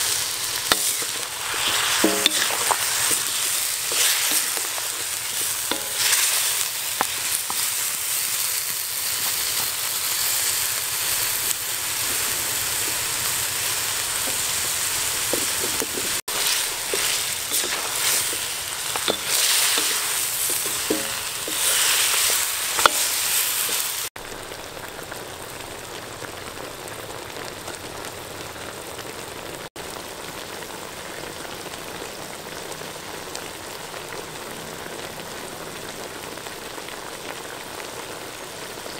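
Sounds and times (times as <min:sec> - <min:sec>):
chicken feet sizzling in oil: 0:00.0 - 0:38.9
wooden spatula stirring: 0:00.7 - 0:08.0, 0:15.3 - 0:24.1.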